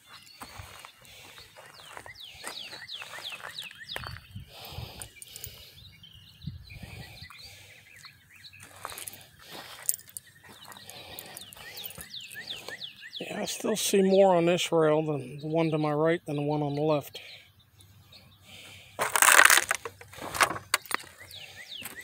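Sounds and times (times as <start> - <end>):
footsteps crunching on ballast: 0.0 - 5.2, 7.3 - 12.8, 18.5 - 22.0
bird chirping: 0.0 - 22.0.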